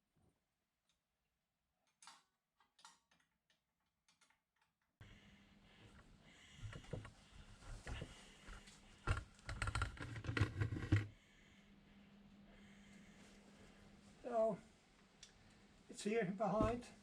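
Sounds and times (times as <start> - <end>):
faint steady hum: 5.0 - 17.0.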